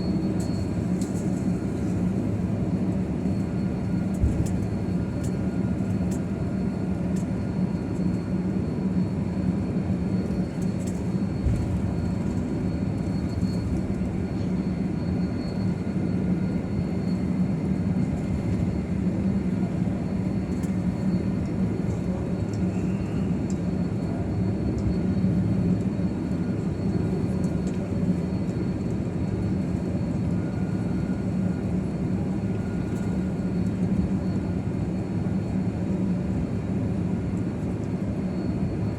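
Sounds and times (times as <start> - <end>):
jet airliner cabin drone: 0.0 - 38.9.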